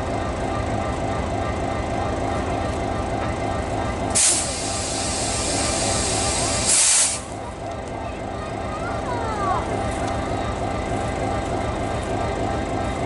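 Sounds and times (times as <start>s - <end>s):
diesel locomotive rumbling: 0.0s - 13.0s
compressed air hissing: 4.2s - 7.3s.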